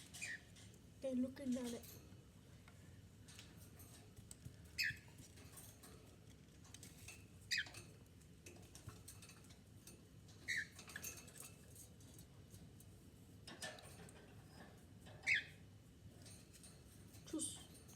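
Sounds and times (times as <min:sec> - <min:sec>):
cockatiel chirps: 0:04.8 - 0:05.0, 0:15.2 - 0:15.5.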